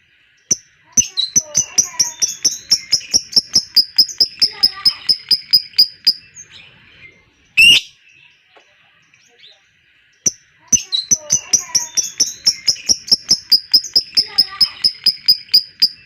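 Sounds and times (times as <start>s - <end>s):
lovebird chatter: 0.4s - 8.0s, 9.2s - 16.0s
loud harsh bird call: 7.6s - 8.0s.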